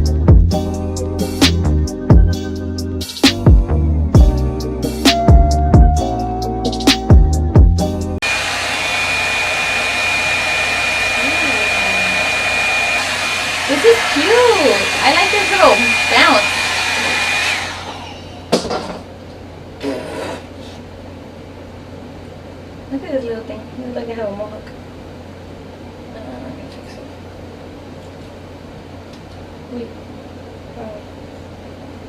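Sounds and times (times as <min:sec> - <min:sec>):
hair dryer running: 0:08.2 - 0:18.8.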